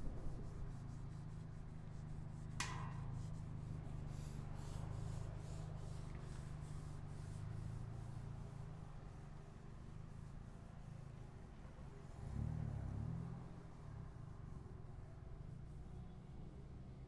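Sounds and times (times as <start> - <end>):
wind on microphone: 0.0 - 2.4
traffic: 0.0 - 17.0.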